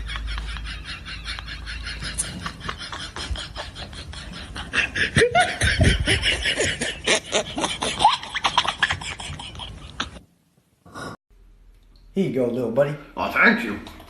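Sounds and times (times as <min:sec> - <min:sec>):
person laughing and giggling: 0:00.0 - 0:10.2.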